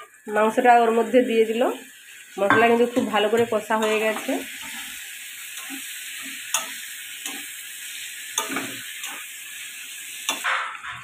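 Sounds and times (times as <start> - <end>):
meat sizzling in a pan: 0.0 - 11.0
metal spatula scraping a pan: 2.5 - 9.3, 10.1 - 11.0.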